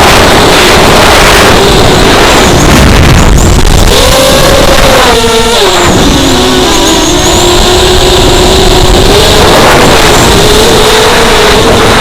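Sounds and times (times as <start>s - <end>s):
rush of air: 0.0s - 5.1s
quadcopter motors whining: 0.0s - 12.0s.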